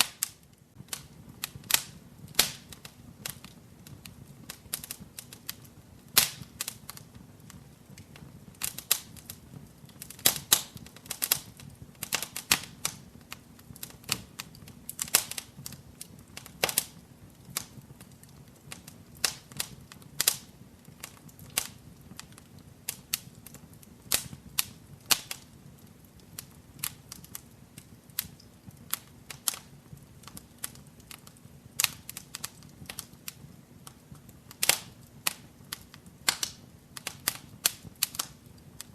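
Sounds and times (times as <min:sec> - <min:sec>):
low rush of flame: 0:00.0 - 0:38.9
wood fire crackling and popping: 0:00.0 - 0:38.9.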